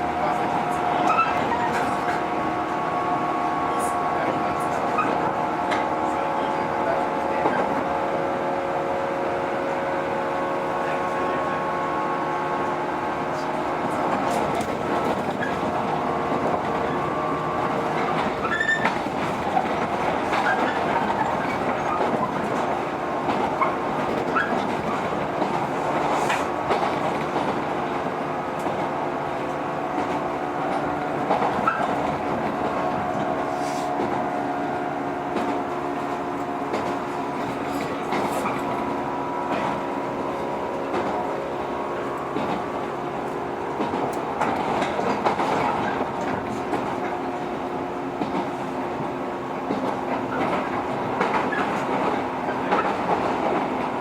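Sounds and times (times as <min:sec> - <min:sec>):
rail noise: 0:00.0 - 0:54.0
train motors humming: 0:00.0 - 0:54.0
wheels clicking over rail joints: 0:12.6 - 0:54.0.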